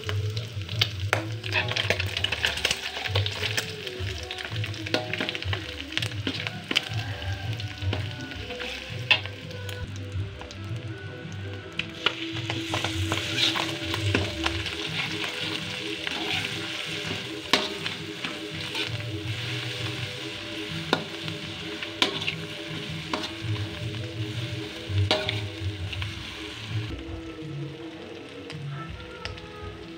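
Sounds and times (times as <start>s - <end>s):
food sizzling in hot oil: 0.0s - 29.9s
metal spatula scraping a pan: 1.4s - 3.1s, 12.6s - 26.1s.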